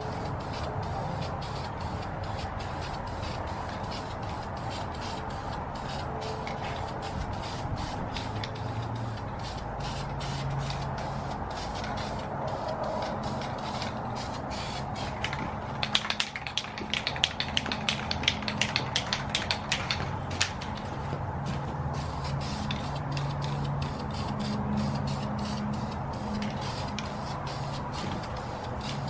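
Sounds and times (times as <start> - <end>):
spray hiss: 0.0 - 15.2, 22.0 - 29.0.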